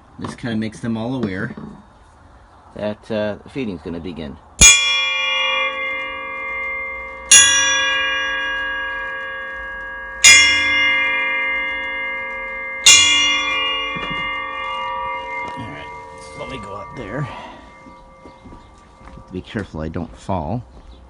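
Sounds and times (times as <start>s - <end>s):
bell ringing: 4.6s - 20.0s.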